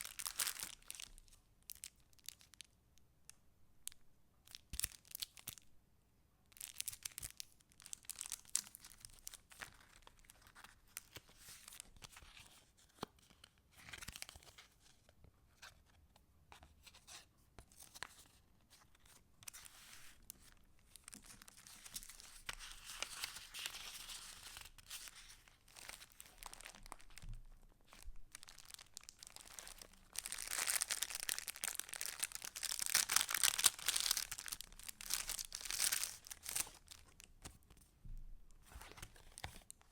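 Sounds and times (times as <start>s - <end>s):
paper pages rustling: 21.2s - 27.2s, 38.6s - 39.7s.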